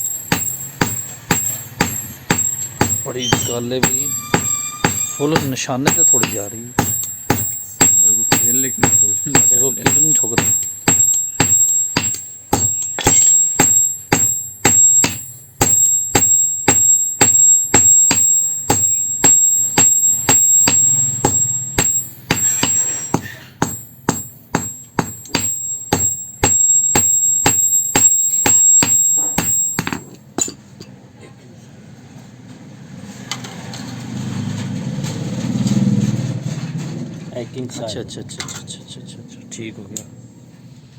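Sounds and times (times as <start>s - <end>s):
hammer striking steel on anvil: 0.0s - 30.9s.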